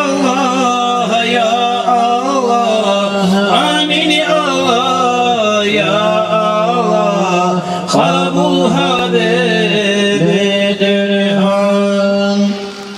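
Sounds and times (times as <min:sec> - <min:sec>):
men chanting: 0:00.0 - 0:12.7.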